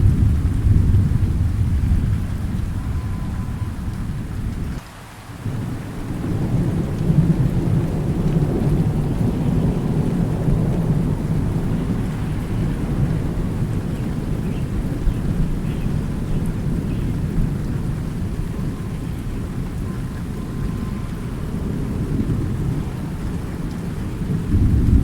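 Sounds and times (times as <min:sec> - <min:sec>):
rolling thunder rumble: 0:00.0 - 0:04.8, 0:05.4 - 0:25.0
rain falling: 0:00.0 - 0:25.0.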